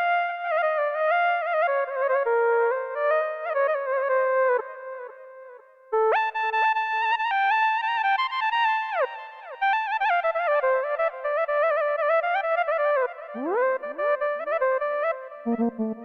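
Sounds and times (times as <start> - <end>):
synthesizer lead melody: 15.5 - 16.0.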